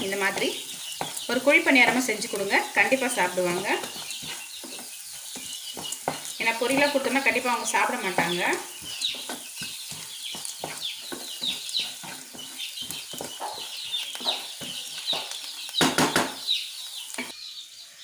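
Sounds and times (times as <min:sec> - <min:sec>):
spoon scraping a pan: 0:00.0 - 0:15.4
birds chirping: 0:00.0 - 0:18.0
onions sizzling in oil: 0:00.0 - 0:18.0
clatter in a pan: 0:08.8 - 0:16.3.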